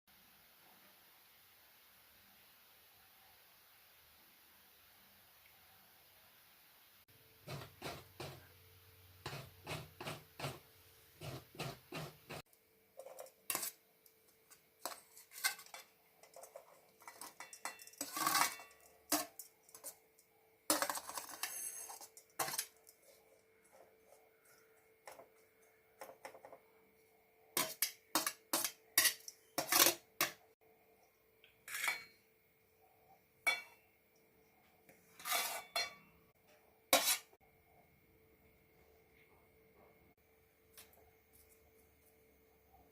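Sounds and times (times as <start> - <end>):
metal pots rattling: 14.4 - 20.0, 20.7 - 22.9, 27.6 - 30.4
kitchen utensils clinking: 14.5 - 20.0, 20.7 - 23.0, 27.6 - 30.4, 31.6 - 32.2, 33.5 - 33.8, 35.0 - 36.2.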